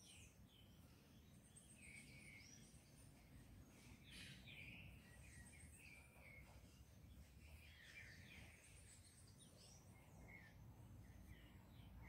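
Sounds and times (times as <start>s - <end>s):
faint high bird chirps: 0.0s - 12.0s.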